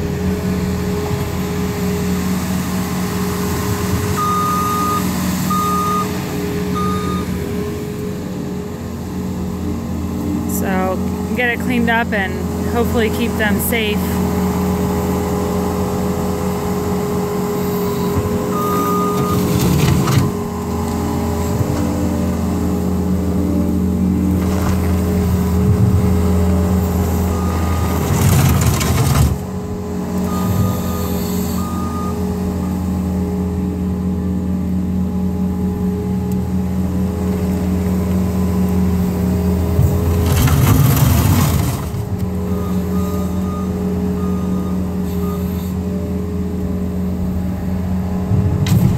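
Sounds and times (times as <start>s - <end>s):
diesel engine running: 0.0s - 48.9s
backup alarm beeps: 4.2s - 7.4s, 18.5s - 19.6s, 30.2s - 32.2s, 42.5s - 45.7s.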